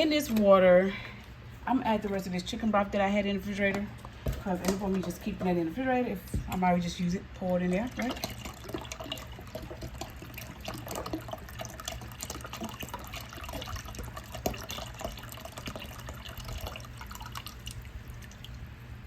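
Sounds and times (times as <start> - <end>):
liquid pouring and splashing: 7.4 - 18.8.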